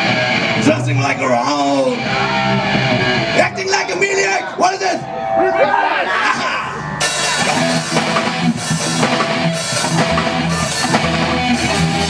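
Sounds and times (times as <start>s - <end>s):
electric guitar: 0.0s - 3.6s, 7.0s - 12.0s
drum kit: 7.0s - 12.0s.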